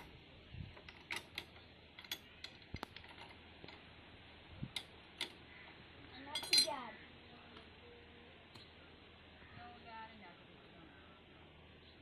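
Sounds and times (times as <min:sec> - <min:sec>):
light mechanical clicks and knocks: 0:00.0 - 0:03.9, 0:04.7 - 0:06.7.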